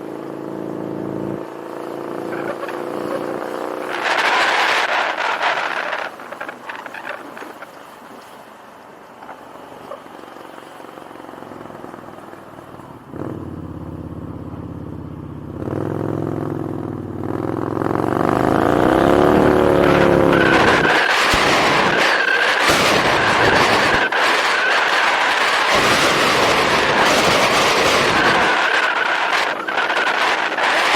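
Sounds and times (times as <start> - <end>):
motorcycle engine accelerating: 0.0 - 7.2, 10.3 - 30.9
wind noise on microphone: 3.8 - 7.8, 18.2 - 30.9.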